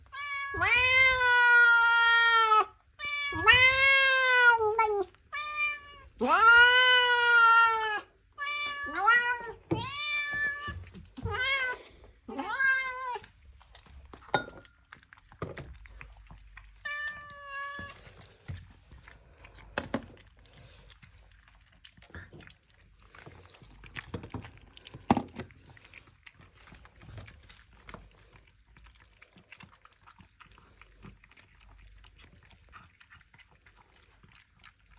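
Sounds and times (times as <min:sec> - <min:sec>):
cat meowing loudly: 0:00.1 - 0:13.2.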